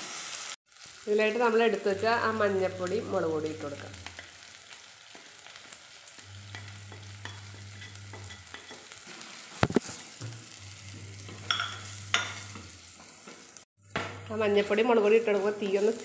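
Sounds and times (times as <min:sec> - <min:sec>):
vegetables sizzling in oil: 0:00.0 - 0:16.0
spatula scraping pot: 0:06.4 - 0:13.5.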